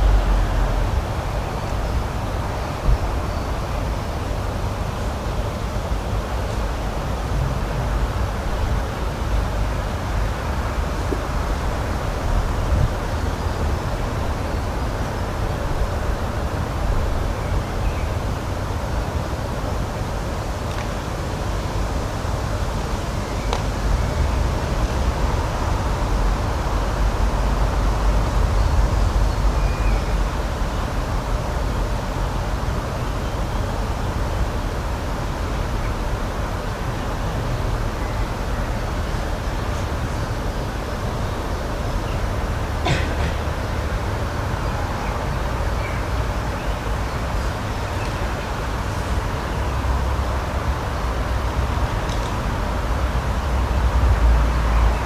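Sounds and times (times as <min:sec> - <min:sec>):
noisy low rumble: 0:00.0 - 0:04.7
continuous rushing noise: 0:00.0 - 0:55.0.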